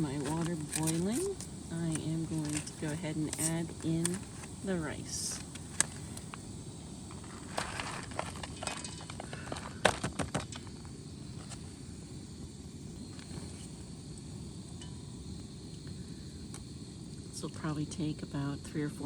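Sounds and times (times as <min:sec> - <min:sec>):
water boiling in a pot: 0:00.0 - 0:09.8, 0:10.4 - 0:19.0
knocks and taps of rice added: 0:07.1 - 0:10.7.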